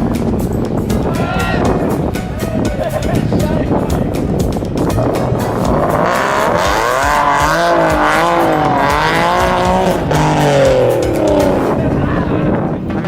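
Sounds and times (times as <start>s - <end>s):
car accelerating hard: 4.4s - 12.7s.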